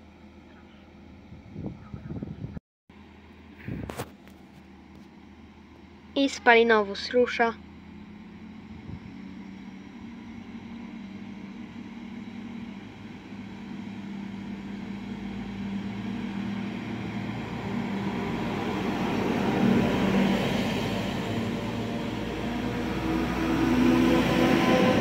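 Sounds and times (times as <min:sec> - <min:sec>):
electric train running noise: 0:04.7 - 0:25.0.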